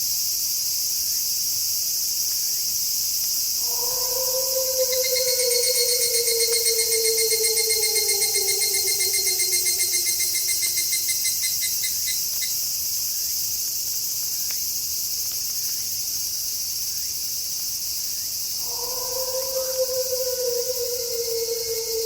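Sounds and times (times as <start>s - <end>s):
crickets and insects chirping: 3.4s - 22.0s
wolf howling: 3.6s - 11.3s, 18.6s - 22.0s.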